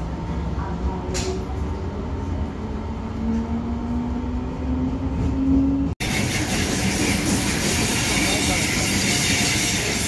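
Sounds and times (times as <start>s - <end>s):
train low rumble: 0.0s - 10.0s
hiss and rail noise: 6.0s - 10.0s.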